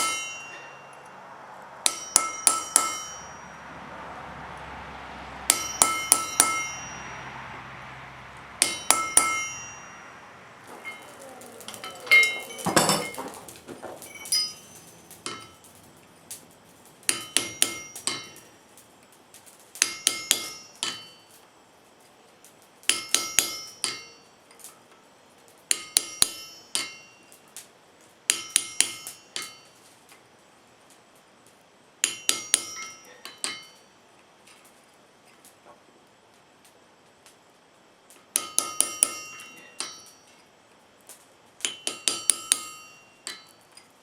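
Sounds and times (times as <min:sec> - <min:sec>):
hammer striking chisel on metal: 0:00.0 - 0:01.0, 0:01.8 - 0:03.4, 0:05.5 - 0:07.1, 0:08.6 - 0:10.0, 0:14.3 - 0:15.6, 0:17.1 - 0:18.5, 0:19.8 - 0:21.2, 0:22.9 - 0:24.2, 0:25.7 - 0:27.2, 0:28.3 - 0:29.7, 0:32.0 - 0:33.8, 0:38.4 - 0:40.2, 0:41.6 - 0:43.6.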